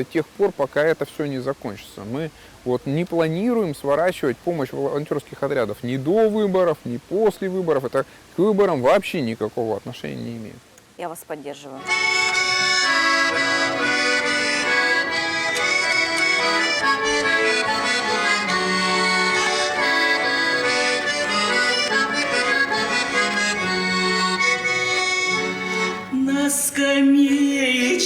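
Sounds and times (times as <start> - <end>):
accordion folk tune: 11.8 - 28.0.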